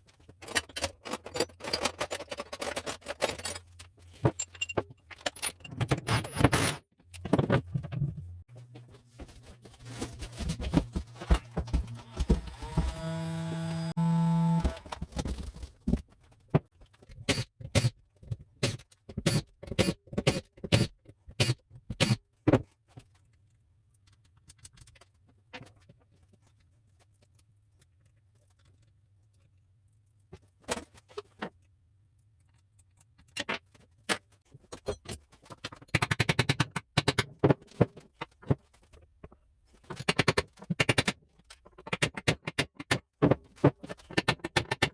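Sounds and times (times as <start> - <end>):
metal tools clinking: 0.4 - 6.8
small power tool whirring: 11.6 - 15.0.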